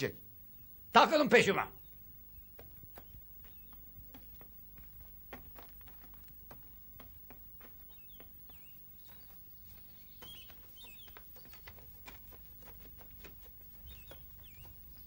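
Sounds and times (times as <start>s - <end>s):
small bird chirping: 1.7s - 4.2s, 7.8s - 15.0s
footsteps on grass: 2.4s - 15.0s.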